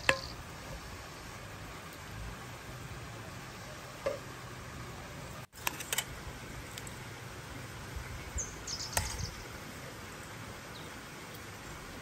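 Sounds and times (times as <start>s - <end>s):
small bird chirping: 8.3s - 9.5s.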